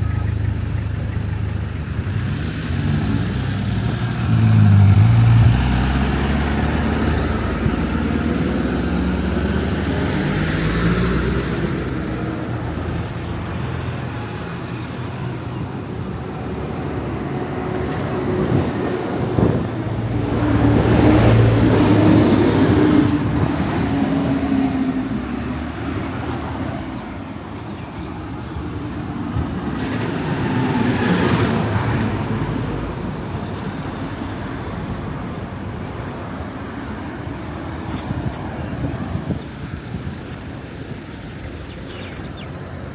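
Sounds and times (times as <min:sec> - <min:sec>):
traffic running: 0:00.0 - 0:42.9
vehicle passing close by: 0:01.6 - 0:12.3, 0:17.1 - 0:27.2, 0:29.3 - 0:35.4.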